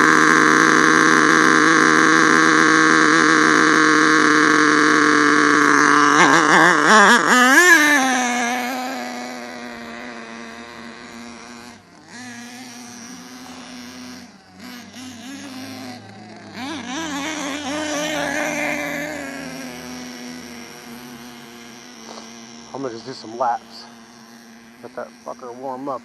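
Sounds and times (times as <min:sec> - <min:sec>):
small nitro engine revving: 0:00.0 - 0:26.0.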